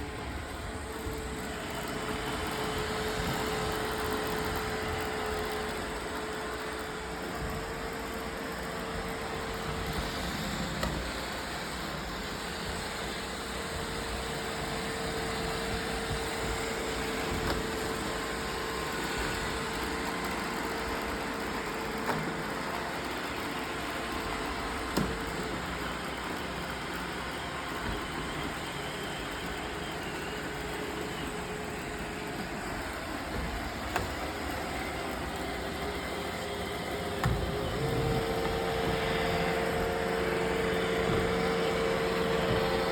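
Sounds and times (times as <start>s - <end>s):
robot vacuum whirring: 0.0s - 42.9s.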